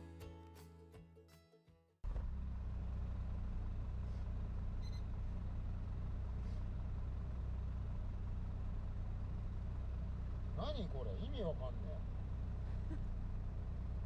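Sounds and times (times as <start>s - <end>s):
small car engine idling: 2.1s - 14.0s.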